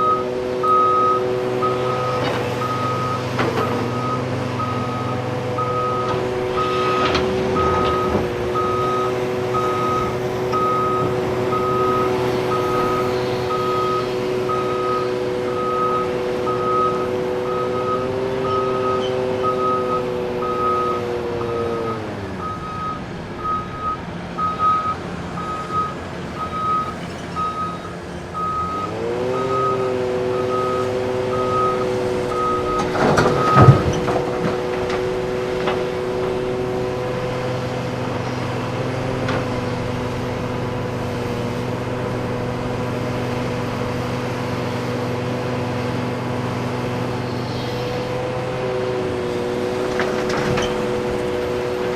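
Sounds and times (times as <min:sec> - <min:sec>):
backup alarm beeping: 0:00.0 - 0:29.8, 0:30.4 - 0:34.0
diesel engine running: 0:00.0 - 0:51.9
clatter of impacts: 0:32.7 - 0:35.9.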